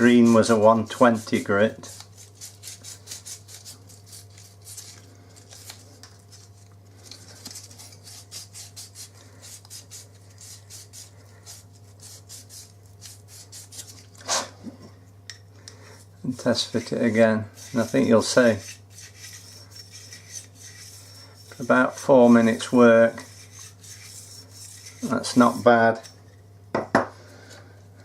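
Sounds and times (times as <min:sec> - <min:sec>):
hand sanding strokes: 0:00.0 - 0:05.0, 0:07.5 - 0:14.0, 0:16.5 - 0:25.8
faint steady hum: 0:00.0 - 0:28.0.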